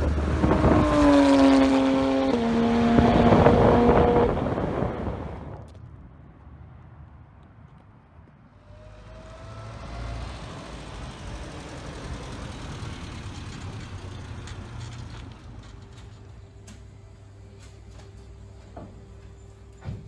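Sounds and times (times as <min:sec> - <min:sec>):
car engine driving past: 0:08.6 - 0:15.4.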